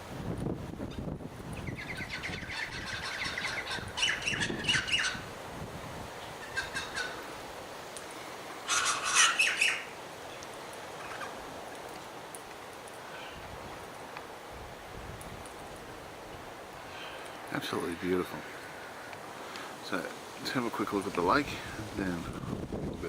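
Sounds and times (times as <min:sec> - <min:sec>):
birds chirping rapidly: 0:00.9 - 0:05.3, 0:06.2 - 0:07.3, 0:08.6 - 0:11.4.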